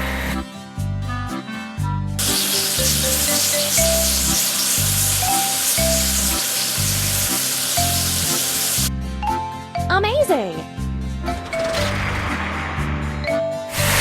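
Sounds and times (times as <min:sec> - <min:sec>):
cartoon water spray hiss: 0:02.2 - 0:08.9.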